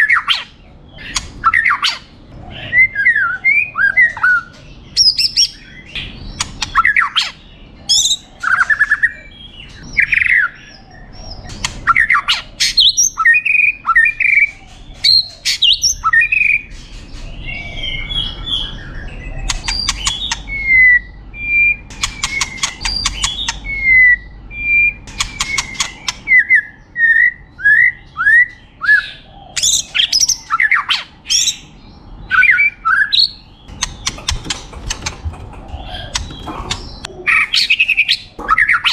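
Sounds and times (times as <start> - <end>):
bird rapid dry rattles: 33.7 - 37.1.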